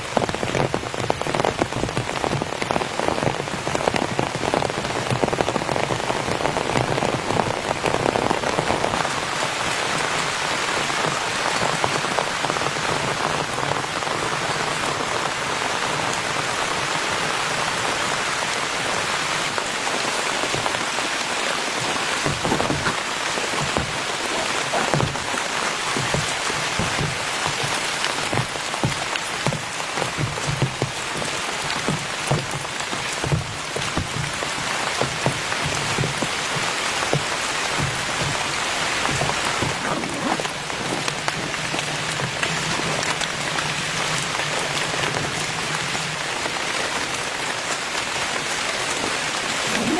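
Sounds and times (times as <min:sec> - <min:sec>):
heavy rain falling: 0:00.0 - 0:49.9
large raindrops landing close: 0:00.0 - 0:49.9.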